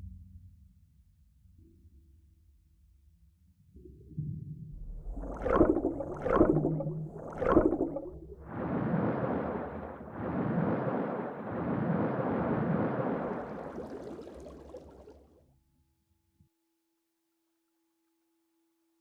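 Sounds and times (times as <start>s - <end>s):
rushing noise: 5.0s - 14.1s.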